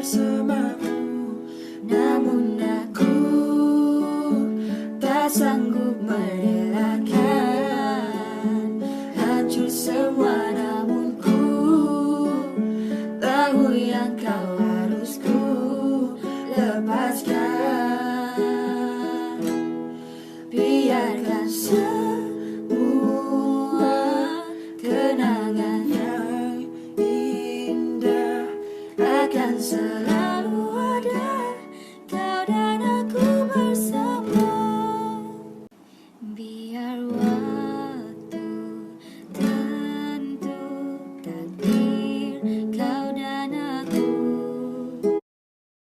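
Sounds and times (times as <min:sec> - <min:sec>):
strummed acoustic string instrument: 0:00.0 - 0:35.8, 0:36.8 - 0:45.2
person singing out of tune: 0:20.5 - 0:35.5.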